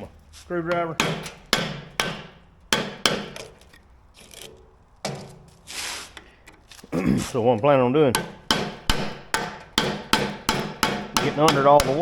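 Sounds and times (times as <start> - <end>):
sharp metal knocks: 0.7 - 3.8, 5.0 - 5.5, 8.1 - 12.0.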